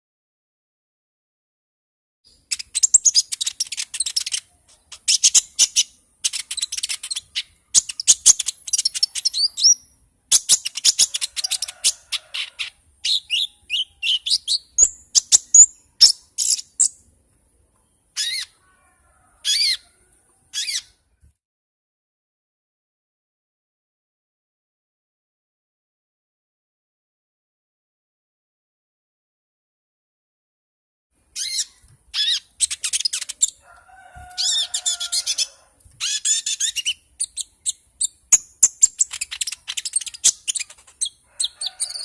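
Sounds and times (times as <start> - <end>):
songbird chattering: 2.3 - 17.0, 18.2 - 18.6, 31.4 - 33.6, 34.4 - 42.0
short bird calls: 18.2 - 21.0.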